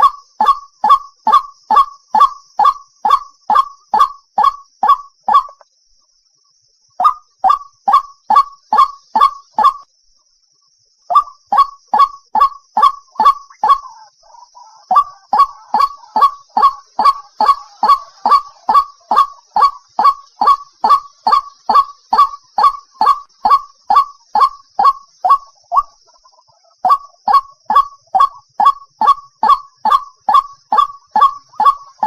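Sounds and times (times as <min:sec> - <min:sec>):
soft bird chattering: 0:11.1 - 0:32.0
waterhen calling: 0:11.1 - 0:32.0.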